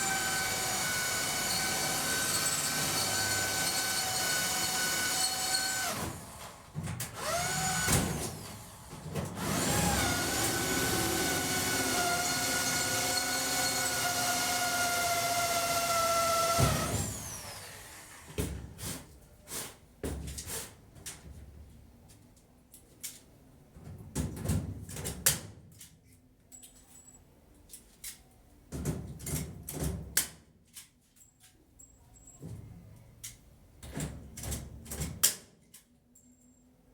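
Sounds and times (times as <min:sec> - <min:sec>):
power tool motor whining: 0:00.0 - 0:06.5, 0:07.2 - 0:08.7, 0:09.4 - 0:18.3.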